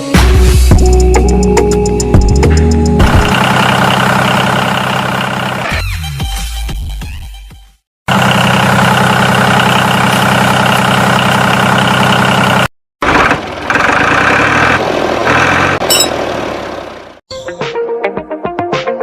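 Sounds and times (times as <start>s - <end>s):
engine idling: 3.0s - 5.7s, 8.1s - 17.2s.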